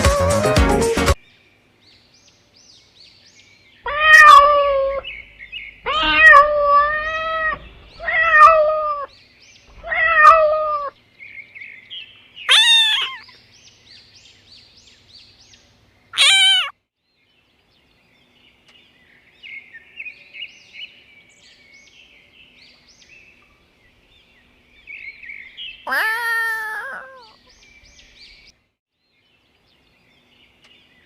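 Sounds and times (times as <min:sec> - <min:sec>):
faint small birds chirping: 0:01.1 - 0:31.0
peacock calling: 0:03.8 - 0:11.0, 0:12.5 - 0:13.4, 0:16.2 - 0:16.8, 0:25.5 - 0:28.2.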